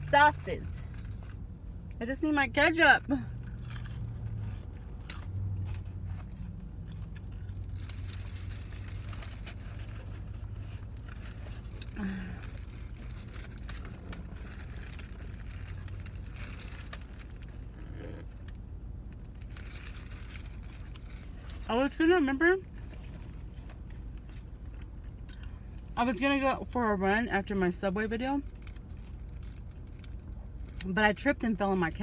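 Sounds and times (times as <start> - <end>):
low car hum: 0.0 - 32.0
person chewing: 3.3 - 8.3
food packaging crackling: 3.4 - 17.8.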